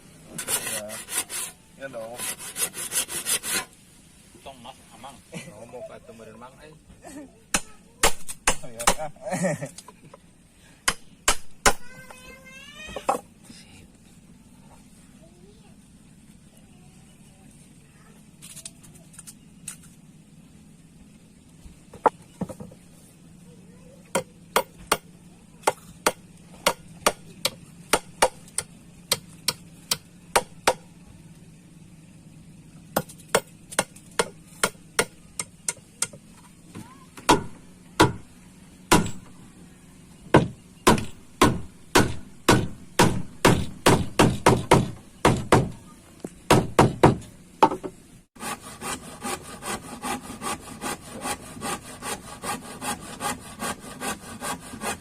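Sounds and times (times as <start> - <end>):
saw cutting wood: 0.2 - 3.8, 48.4 - 55.0.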